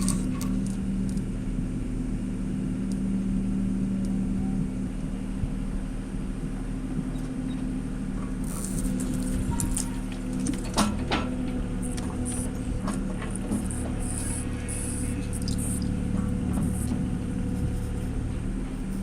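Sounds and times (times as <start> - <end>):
rattles and clicks: 0.0 - 1.2, 7.0 - 19.0
small engine running: 0.0 - 1.2, 4.6 - 19.0.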